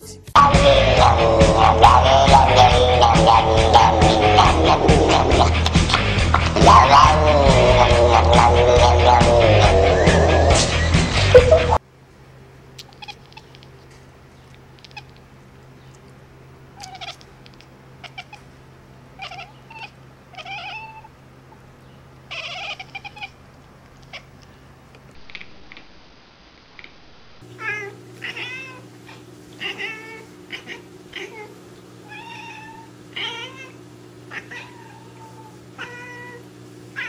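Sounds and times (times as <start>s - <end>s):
cat meowing: 12.8s - 13.6s, 16.8s - 18.5s, 19.2s - 21.1s, 22.3s - 23.4s, 24.0s - 24.4s, 27.6s - 37.0s
cat making rising and falling calls: 16.8s - 18.5s, 19.2s - 21.1s, 22.3s - 23.4s.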